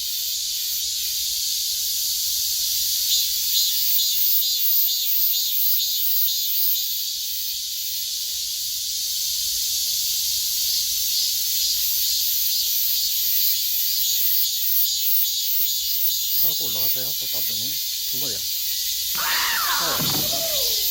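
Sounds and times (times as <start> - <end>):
cicadas buzzing: 10.6 - 20.9.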